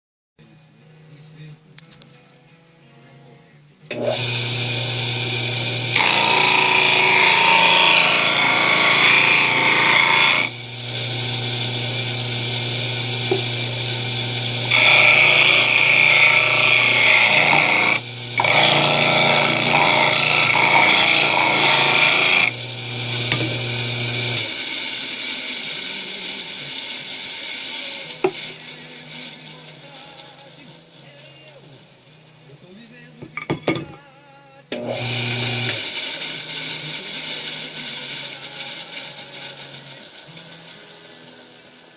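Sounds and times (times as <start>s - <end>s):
electric motor humming: 3.9s - 29.8s, 34.7s - 40.4s
disc sander grinding: 3.9s - 30.2s, 34.7s - 41.9s
disc running down with a whir: 10.5s - 16.6s.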